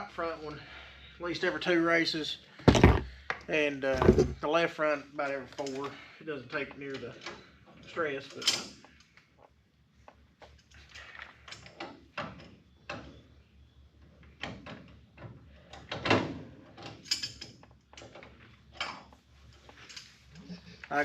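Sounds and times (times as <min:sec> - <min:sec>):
metal parts clicking and scraping: 0:16.7 - 0:20.6.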